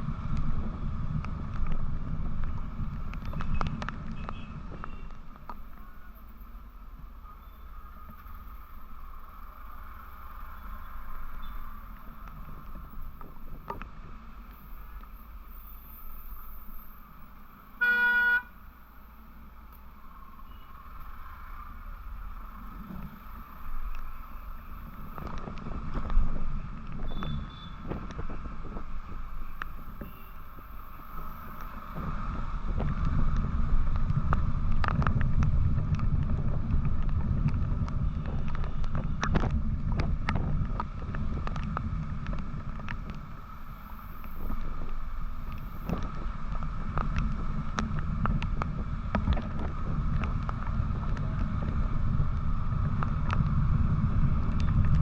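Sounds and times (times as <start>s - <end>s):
wind noise while riding: 0.0s - 5.8s, 21.8s - 55.0s
road rumble: 0.0s - 55.0s
vehicle horn honk: 17.8s - 18.5s.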